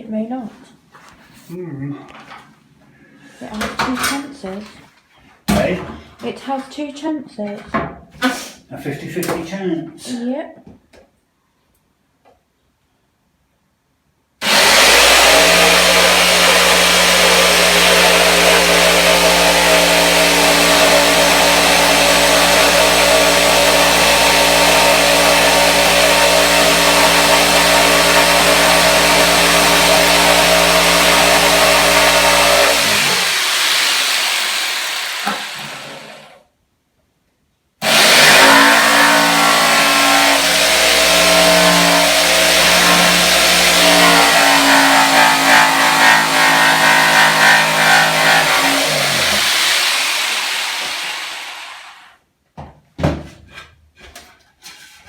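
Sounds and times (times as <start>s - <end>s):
electric motor running: 14.4s - 36.4s, 37.8s - 52.0s.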